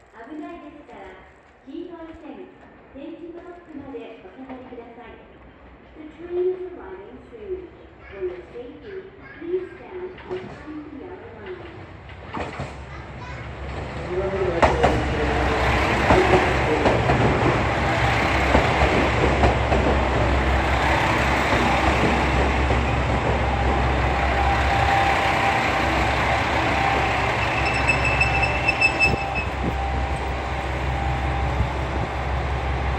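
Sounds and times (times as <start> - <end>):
train rumbling: 2.5 - 32.9
wheels clattering on rail: 10.1 - 30.4
high brake squeal: 26.8 - 30.0.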